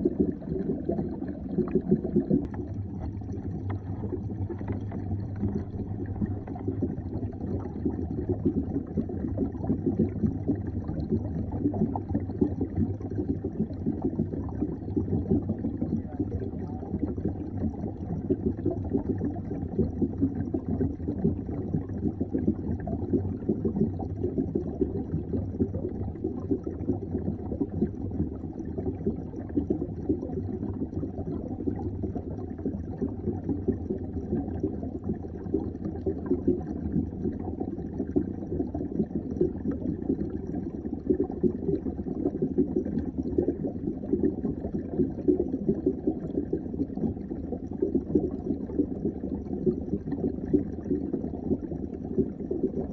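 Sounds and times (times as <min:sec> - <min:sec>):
water bubbling underwater: 0:00.0 - 0:52.9.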